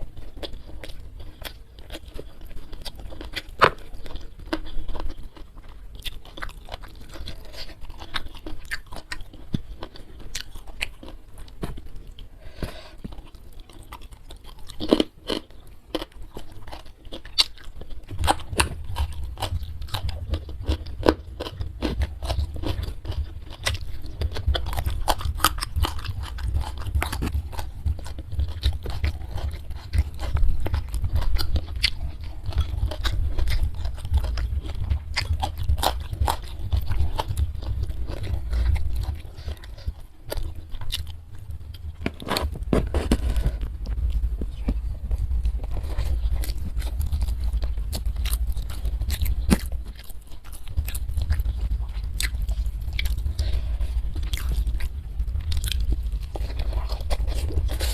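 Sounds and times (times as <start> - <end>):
chewing and crunching food: 0.0 - 57.9
steady low rumble: 16.6 - 57.9.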